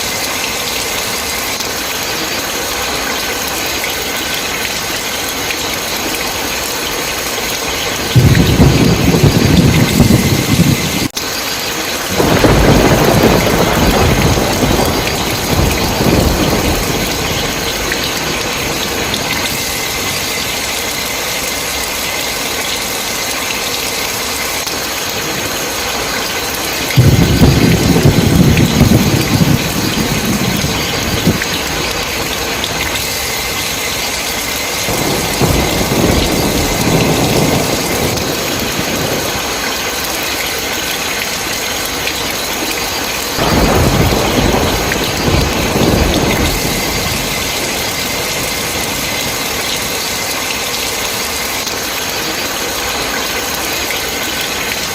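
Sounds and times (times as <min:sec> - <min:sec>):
heavy rain hissing: 0:00.0 - 0:54.9
rolling thunder: 0:07.3 - 0:11.2, 0:11.9 - 0:20.8, 0:26.8 - 0:42.5, 0:43.2 - 0:50.3.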